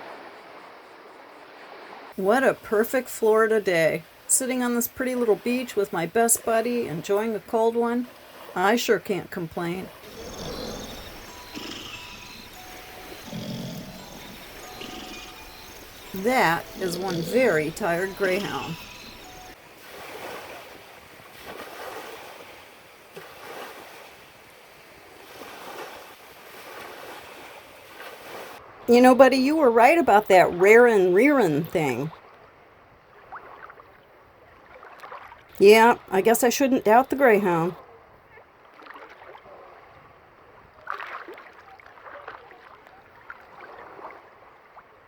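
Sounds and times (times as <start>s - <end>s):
small waves lapping on beach: 0.0s - 29.1s, 38.4s - 45.0s.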